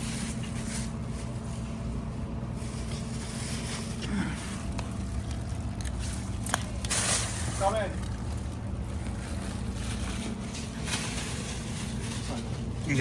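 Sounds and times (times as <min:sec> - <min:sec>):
boat motor droning: 0:04.0 - 0:10.8.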